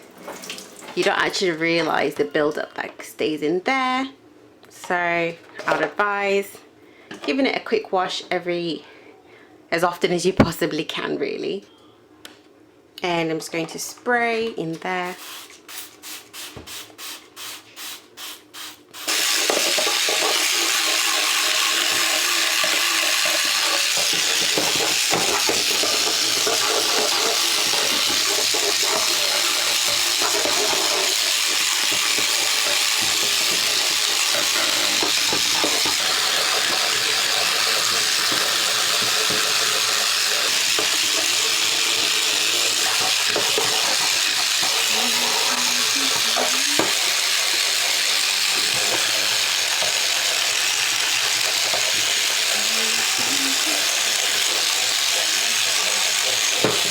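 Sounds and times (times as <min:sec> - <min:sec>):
tap running into sink: 0:19.1 - 0:47.6, 0:55.6 - 0:56.9.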